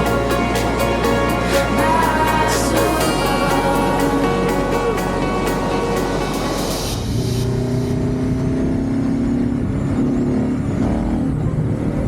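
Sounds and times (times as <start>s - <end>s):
motorcycle engine accelerating: 6.4s - 12.0s.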